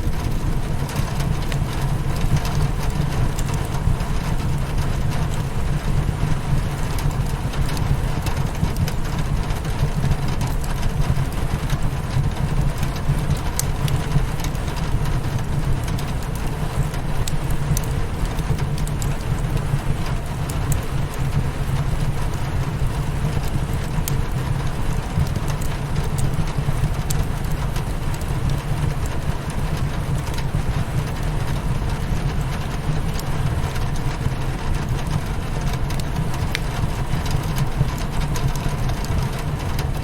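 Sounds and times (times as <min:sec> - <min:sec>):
rain pattering on window: 0:00.0 - 0:40.0
wood fire crackling and popping: 0:00.0 - 0:40.0.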